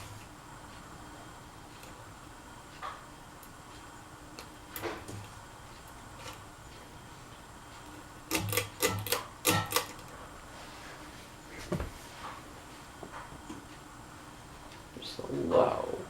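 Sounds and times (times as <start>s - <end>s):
ceiling fan humming: 0.0s - 16.0s
sharp clicks and knocks: 7.8s - 10.1s.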